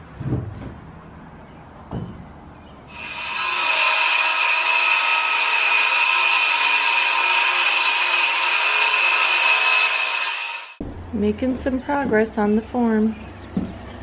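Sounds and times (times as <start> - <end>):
power tool whining under load: 2.9 - 10.8.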